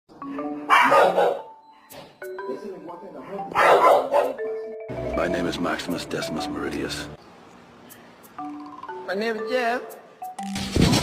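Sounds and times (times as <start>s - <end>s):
loud dog bark: 0.7s - 1.5s, 3.6s - 4.4s
short musical notes: 2.0s - 7.2s.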